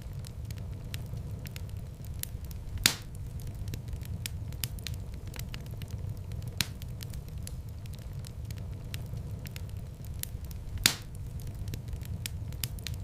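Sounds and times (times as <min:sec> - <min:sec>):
loud fire pops: 0:00.0 - 0:13.0
wood fire crackling: 0:00.0 - 0:13.0.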